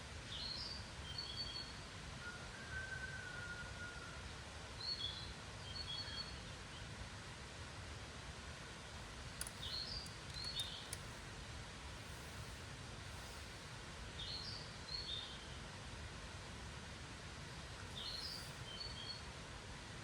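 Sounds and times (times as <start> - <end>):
faint clicks: 9.0 - 11.2
small birds chirping: 9.0 - 11.3, 17.5 - 19.2.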